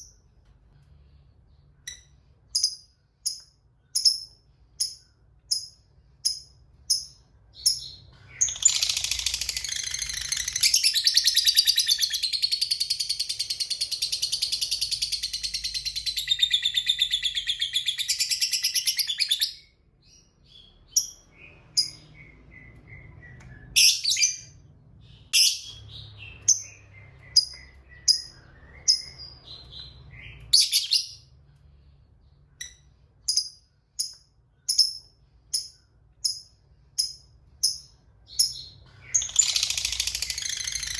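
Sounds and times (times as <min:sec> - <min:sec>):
bird chattering trill: 0:39.2 - 0:40.9.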